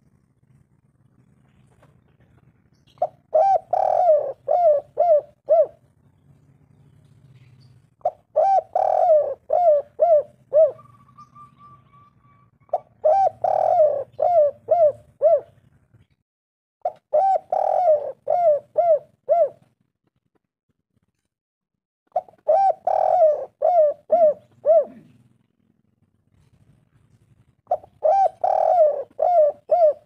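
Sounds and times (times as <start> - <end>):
dove cooing: 2.9 - 5.9, 7.4 - 15.7, 16.8 - 19.7, 22.1 - 25.4, 27.7 - 30.0.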